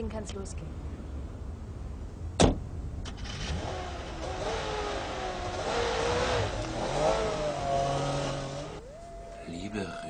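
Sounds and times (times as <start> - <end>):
car engine revving: 3.1 - 8.8.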